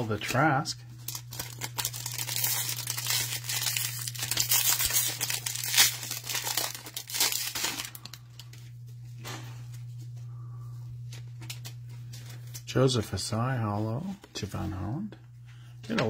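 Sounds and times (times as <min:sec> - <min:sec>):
steady low hum: 0:00.0 - 0:16.0
plastic wrapper crinkling and tearing: 0:00.2 - 0:08.7, 0:11.0 - 0:12.6.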